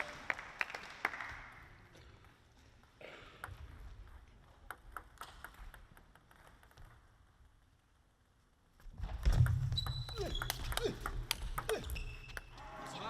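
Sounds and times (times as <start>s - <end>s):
applause: 0.0s - 1.9s
table tennis ball tapping: 4.7s - 7.0s.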